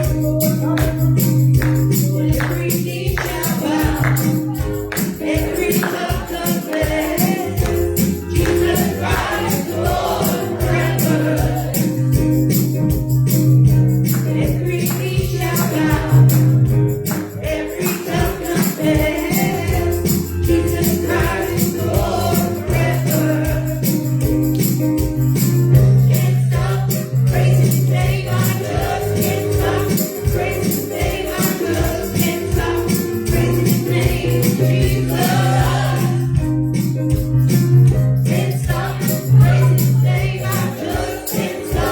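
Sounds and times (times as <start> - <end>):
voices singing gospel: 0.0 - 12.4, 14.0 - 24.4, 25.6 - 36.7, 38.0 - 41.9
tambourine jingling: 0.0 - 41.9
bass notes and steady beat: 7.6 - 17.6, 18.2 - 41.0.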